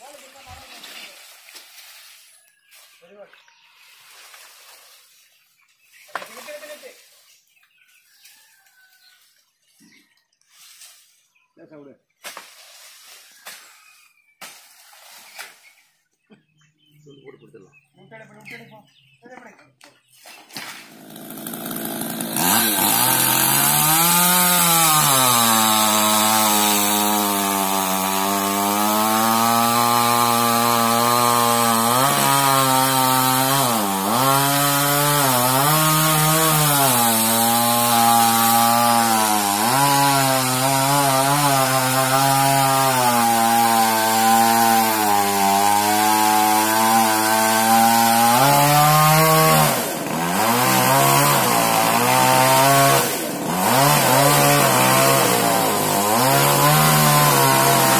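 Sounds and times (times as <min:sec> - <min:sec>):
chainsaw cutting wood: 0:20.5 - 0:57.9.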